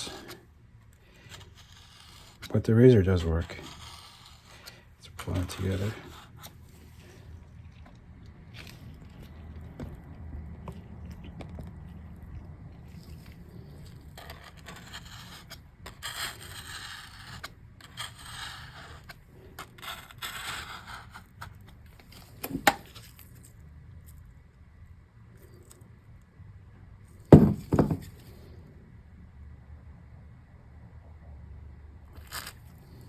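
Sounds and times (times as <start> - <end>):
razor blade scraping: 1.0 - 6.6, 13.0 - 21.6.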